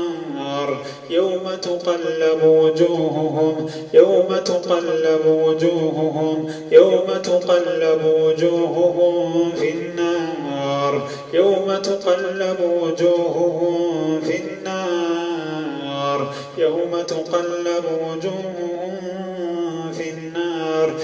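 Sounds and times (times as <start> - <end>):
man chanting melodically: 0.0 - 21.0
man breathing: 0.8 - 1.1, 3.6 - 4.0, 6.4 - 6.7, 11.0 - 11.4, 16.3 - 16.6.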